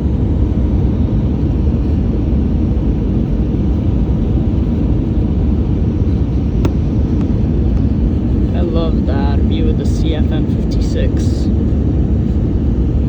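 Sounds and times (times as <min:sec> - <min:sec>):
aircraft cabin rumble: 0:00.0 - 0:13.0.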